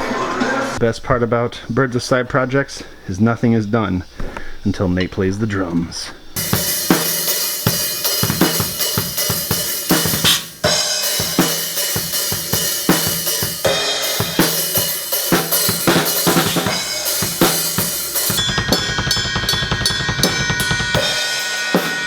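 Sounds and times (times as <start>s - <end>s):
fast drum kit playing: 6.4s - 22.0s.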